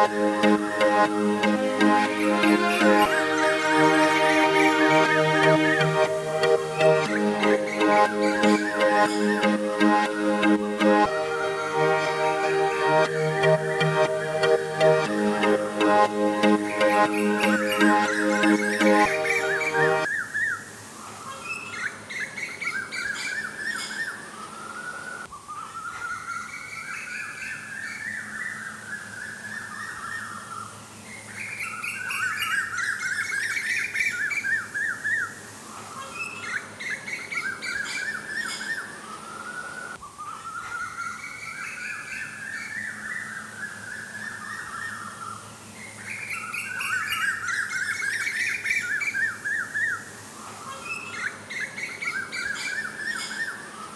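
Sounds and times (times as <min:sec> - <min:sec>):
birds chirping and twittering: 0:21.2 - 0:53.9.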